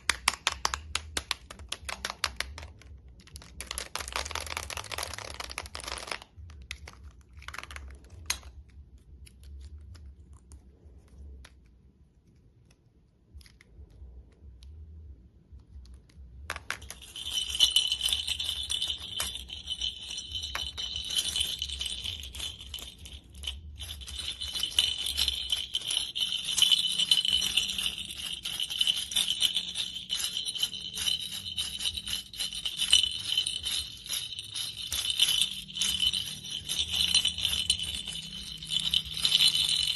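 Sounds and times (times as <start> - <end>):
toy rattle jingling: 16.6 - 39.9.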